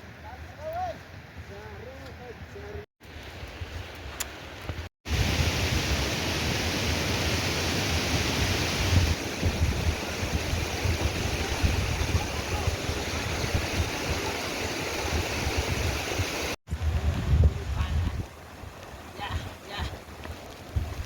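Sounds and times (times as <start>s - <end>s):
water rushing: 5.1s - 21.0s.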